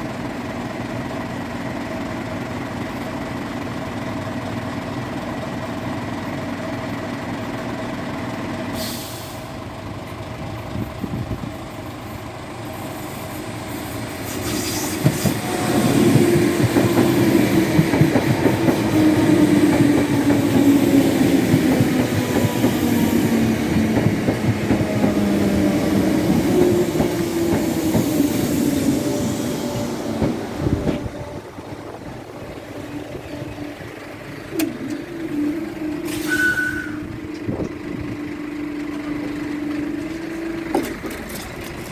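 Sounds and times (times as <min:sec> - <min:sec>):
electric train hum: 0:00.0 - 0:41.9
train wheels clattering on rails: 0:09.7 - 0:31.4, 0:34.5 - 0:41.9.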